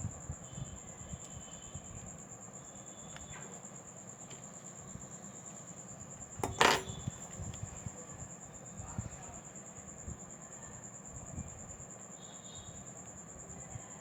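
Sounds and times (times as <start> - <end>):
metal tools tapping: 6.4 - 7.1
sharp metallic clink: 6.4 - 7.2.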